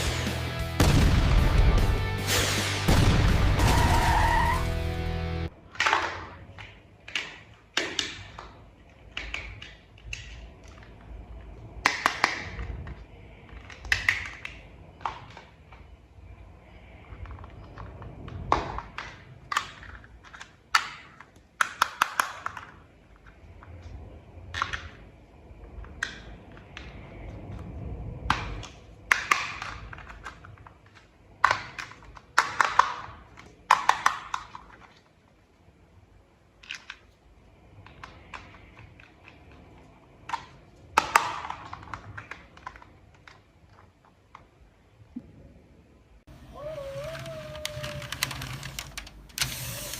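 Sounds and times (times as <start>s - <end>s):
toy parts clicking together: 46.7s - 49.9s.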